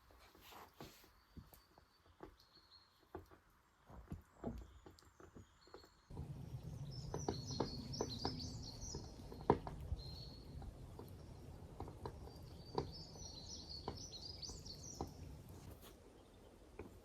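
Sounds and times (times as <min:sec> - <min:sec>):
small birds chirping: 0:00.7 - 0:17.0
steady outdoor hiss: 0:06.1 - 0:17.0.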